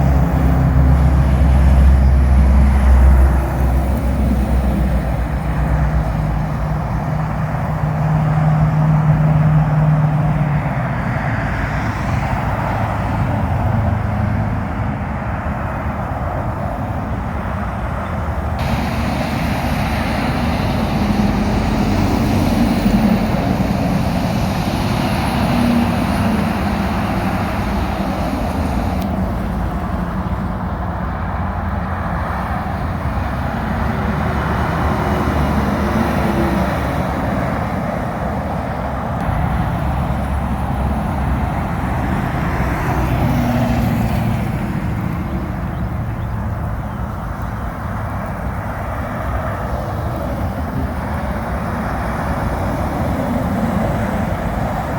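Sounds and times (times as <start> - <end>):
truck diesel engine passing: 0.0 - 54.9
tyre noise on wet road: 15.3 - 54.9.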